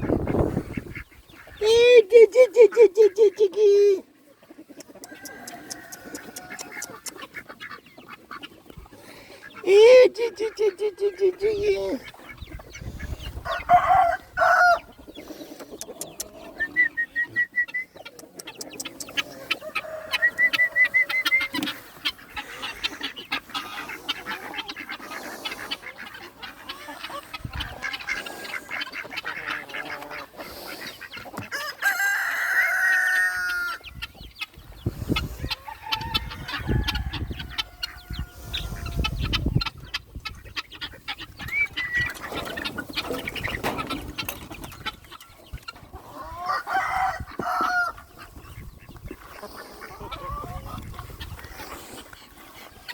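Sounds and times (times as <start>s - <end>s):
chickens clucking: 0.0s - 52.9s
rooster crowing: 5.1s - 6.7s, 13.5s - 14.9s, 31.6s - 33.8s, 35.6s - 38.4s, 46.4s - 48.0s.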